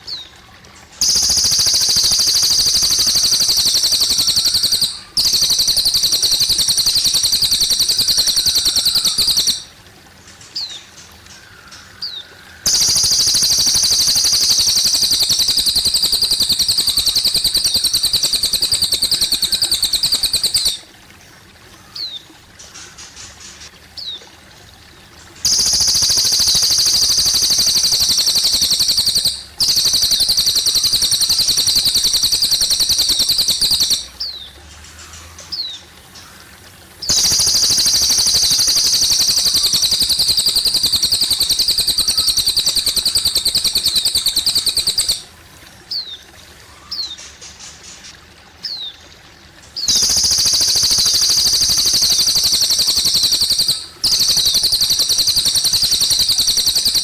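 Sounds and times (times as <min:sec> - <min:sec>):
faint water trickling: 0:00.0 - 0:57.0
bird trilling and chirping: 0:01.0 - 0:09.7, 0:12.0 - 0:20.9, 0:25.5 - 0:35.8, 0:37.0 - 0:45.3, 0:49.8 - 0:57.0.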